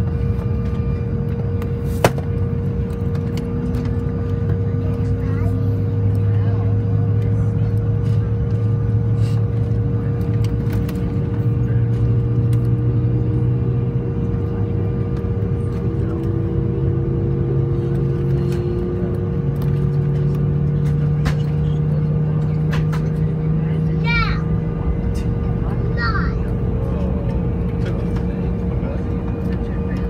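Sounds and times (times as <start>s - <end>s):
jet engines droning in cabin: 0.0s - 30.0s.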